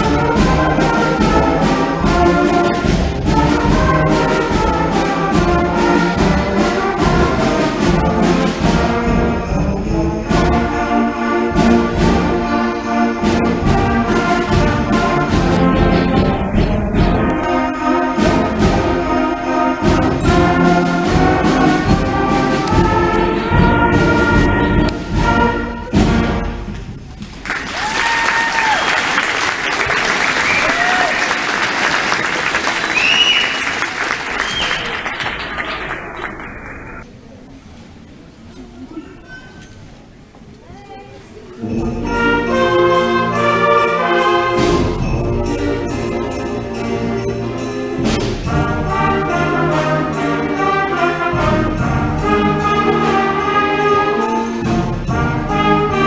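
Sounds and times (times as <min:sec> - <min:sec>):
concert band playing: 0:00.0 - 0:27.6, 0:41.7 - 0:56.0
audience applause: 0:27.4 - 0:37.0
people whooping: 0:27.5 - 0:31.5, 0:32.6 - 0:37.0.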